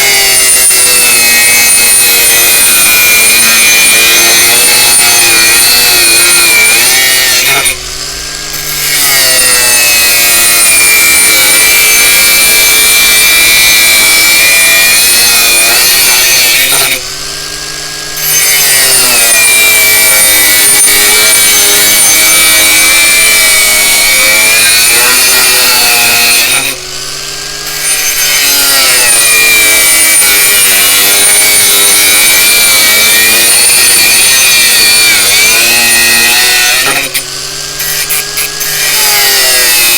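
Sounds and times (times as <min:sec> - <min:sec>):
angle grinder grinding: 0:00.0 - 0:39.9.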